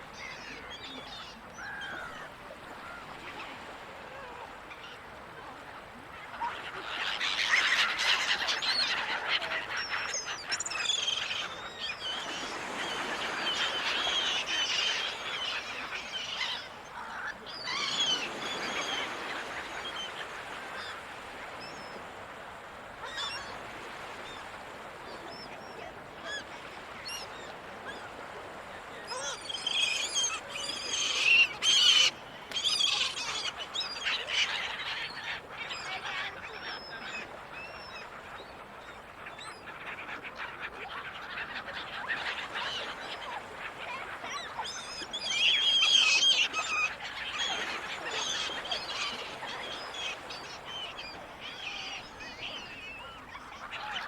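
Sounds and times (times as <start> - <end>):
gulls calling: 26.3 - 38.1.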